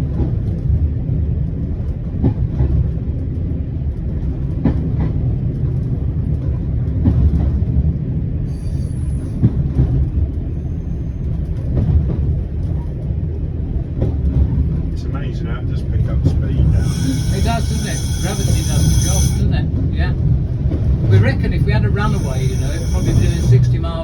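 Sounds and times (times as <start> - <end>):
diesel railcar rumbling: 0.0 - 24.0
high-pitched squeal: 16.6 - 19.6, 21.1 - 24.0.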